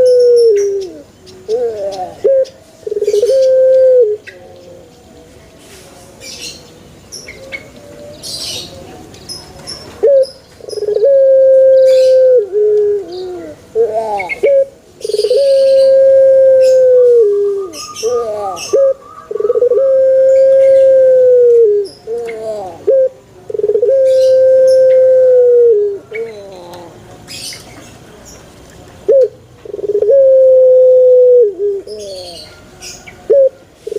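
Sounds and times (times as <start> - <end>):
dove cooing: 0.0 - 4.9, 7.3 - 27.4, 29.1 - 33.9
small birds chirping: 0.0 - 11.1, 13.0 - 16.0, 16.6 - 21.0, 21.8 - 22.9, 26.0 - 30.1, 31.8 - 33.3.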